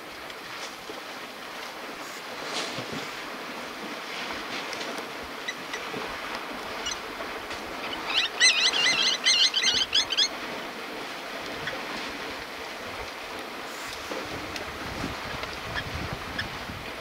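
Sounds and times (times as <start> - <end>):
open-air background rush: 0.0 - 17.0
bird calling high notes: 7.8 - 10.3.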